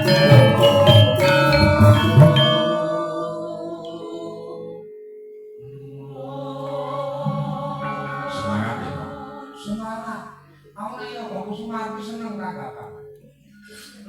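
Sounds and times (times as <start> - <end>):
person singing: 0.0 - 4.9, 5.7 - 10.0
gamelan playing: 0.0 - 5.9, 6.7 - 9.8.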